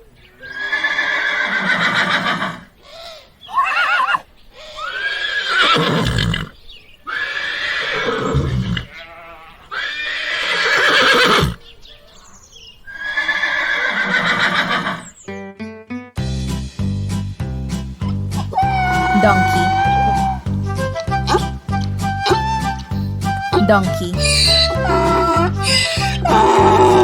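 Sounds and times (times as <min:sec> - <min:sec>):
horse neighing: 0:00.4 - 0:11.7, 0:12.9 - 0:15.2, 0:18.5 - 0:20.5, 0:21.2 - 0:23.1, 0:24.2 - 0:27.0.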